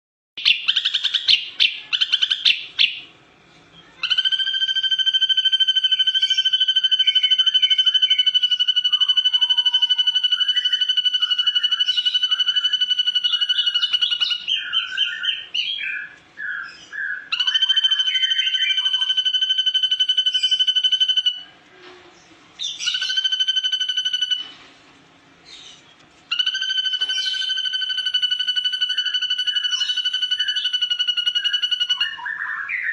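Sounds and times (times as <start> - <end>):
bird chirping and trilling: 0.4 - 21.6, 22.2 - 24.7, 25.4 - 32.9.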